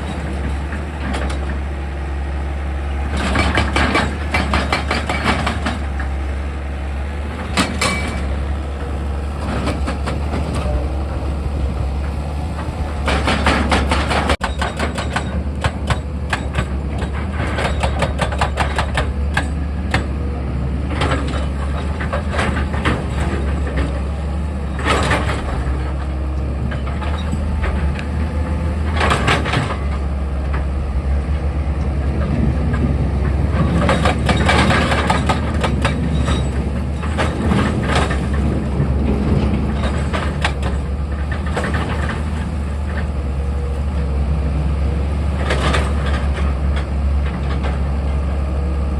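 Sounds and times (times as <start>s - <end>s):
diesel engine under load: 0.0s - 48.9s
rock and steel clattering: 3.0s - 19.6s, 32.3s - 43.2s.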